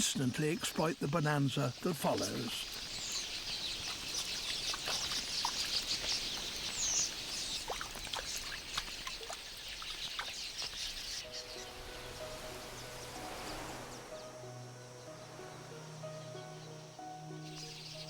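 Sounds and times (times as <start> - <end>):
flock of birds chirping: 0.0 - 18.0
soft music with held notes: 11.2 - 18.0.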